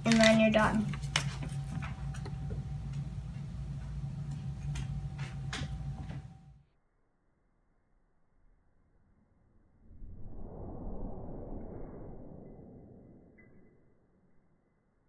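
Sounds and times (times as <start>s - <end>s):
room tone hum: 0.0s - 6.7s.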